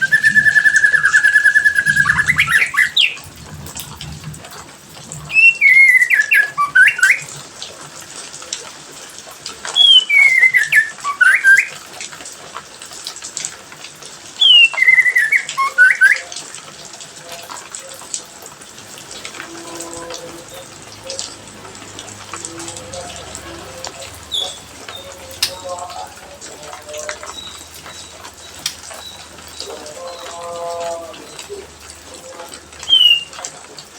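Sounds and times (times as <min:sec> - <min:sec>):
songbird whistling: 0:00.0 - 0:03.3, 0:05.3 - 0:07.3, 0:09.8 - 0:11.8, 0:14.4 - 0:16.3, 0:23.7 - 0:30.4, 0:32.8 - 0:33.5.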